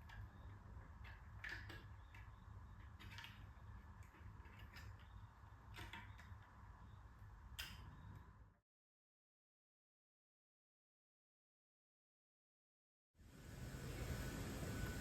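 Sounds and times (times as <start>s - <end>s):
faint clicks and light knocks: 0.0s - 6.6s.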